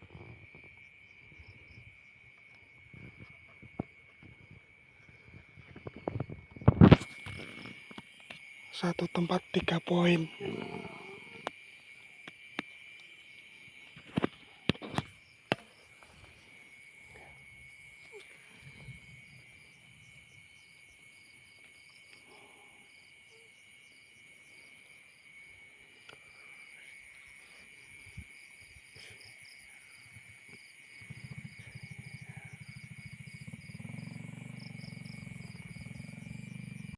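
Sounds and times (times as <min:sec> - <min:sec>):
crickets and insects chirping: 0:00.0 - 0:36.9
low pulsing buzz: 0:31.0 - 0:36.9.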